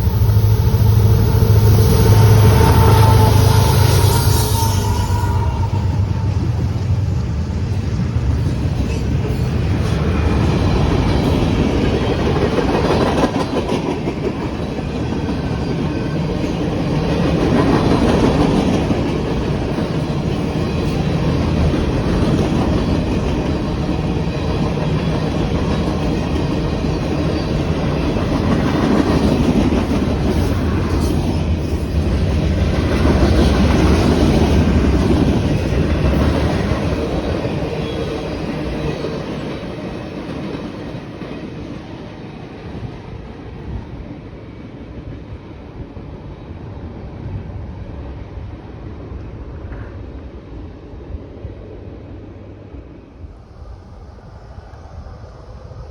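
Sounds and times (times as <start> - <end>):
train wheel clatter: 0.0 - 43.9
freight train rumbling past: 0.0 - 55.9.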